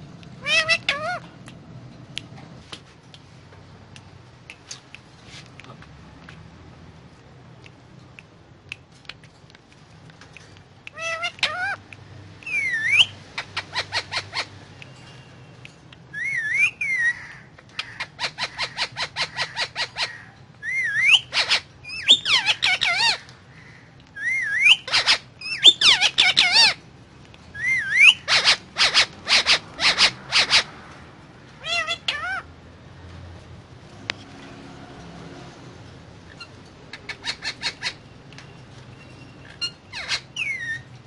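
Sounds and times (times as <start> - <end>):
parakeet sharp calls: 0.4 - 1.4, 10.9 - 15.0, 16.1 - 26.8, 27.6 - 30.8, 31.6 - 32.5, 36.2 - 40.9.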